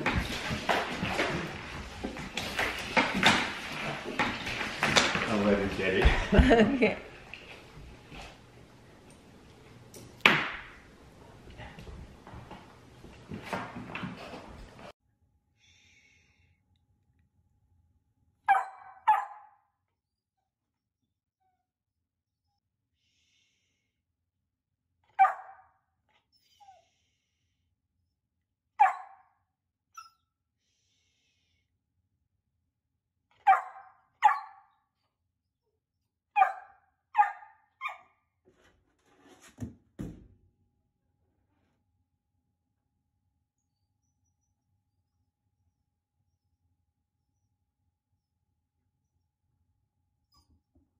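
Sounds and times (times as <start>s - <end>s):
puppy barking: 18.5s - 19.6s, 25.2s - 25.6s, 28.8s - 29.3s, 33.4s - 34.7s, 36.4s - 38.1s.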